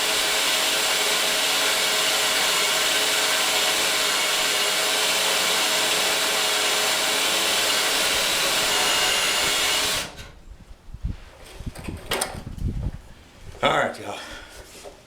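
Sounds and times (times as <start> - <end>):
handheld power tool running: 0.0 - 10.4.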